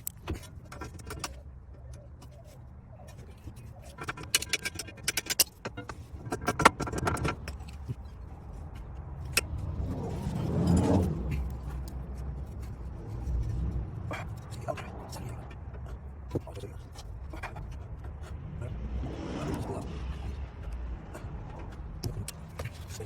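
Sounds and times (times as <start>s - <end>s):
metal tools clinking and rattling: 0.0s - 14.6s
low scraping rumble: 5.9s - 23.0s.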